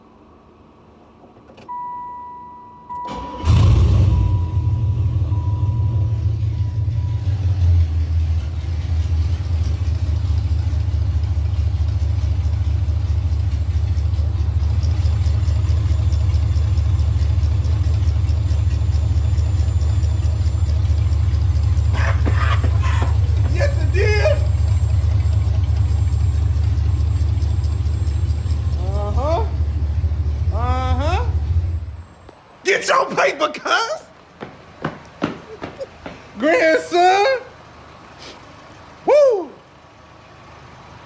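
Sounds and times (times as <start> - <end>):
car engine starting and idling: 0.0 - 32.9, 34.2 - 41.0
engine revving: 3.1 - 32.0.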